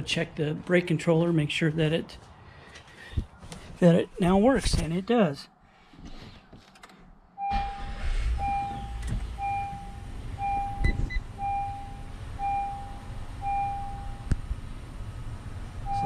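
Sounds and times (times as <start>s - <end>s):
dashboard warning chime beeping: 7.4s - 14.3s
car engine idling: 7.4s - 16.0s.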